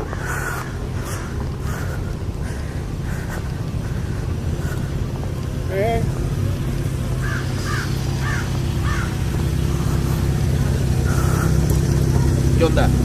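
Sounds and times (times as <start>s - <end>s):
bird cawing: 0.0s - 5.3s, 7.1s - 12.1s
car engine idling: 0.0s - 13.0s.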